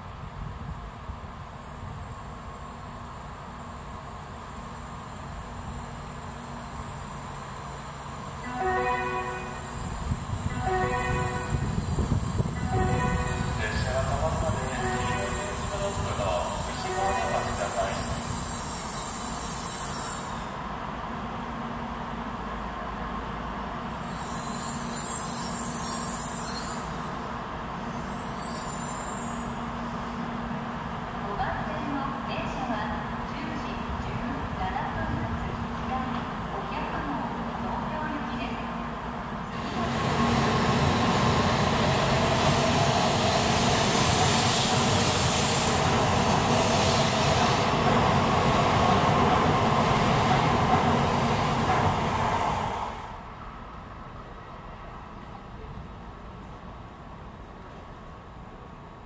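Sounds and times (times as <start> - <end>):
train hum and rumble: 0.0 - 59.0
hiss: 43.0 - 47.4.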